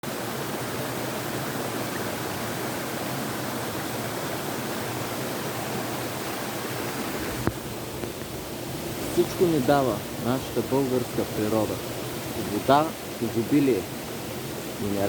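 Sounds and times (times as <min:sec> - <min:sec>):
steady rushing noise: 0:05.7 - 0:15.0.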